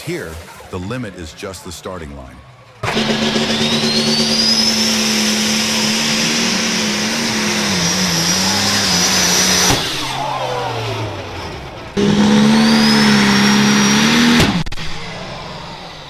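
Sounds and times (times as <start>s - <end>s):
tractor engine running hard: 2.8s - 15.2s.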